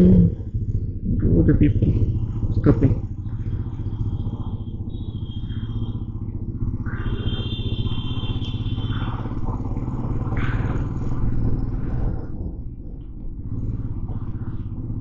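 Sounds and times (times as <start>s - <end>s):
motorcycle engine running: 0.0s - 15.0s
high steady tone: 2.6s - 9.3s.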